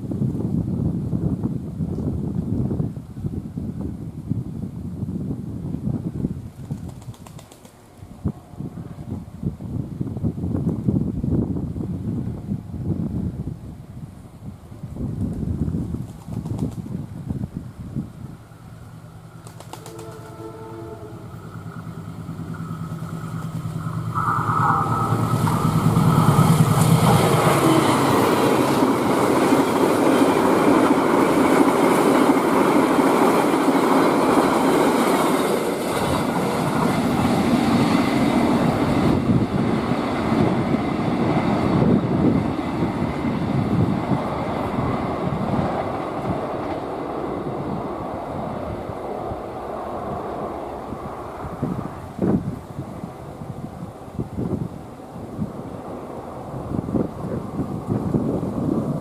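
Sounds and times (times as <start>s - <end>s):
locomotive engine: 18.4s - 52.2s
train carriages rattling on rails: 24.8s - 47.2s.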